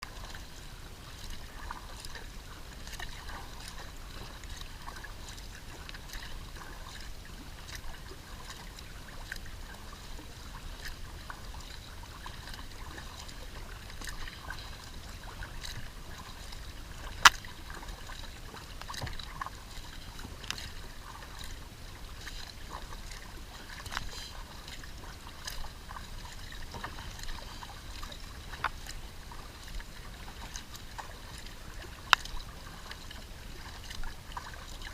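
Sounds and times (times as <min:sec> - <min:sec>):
water splashing off paddle: 0:00.1 - 0:34.9.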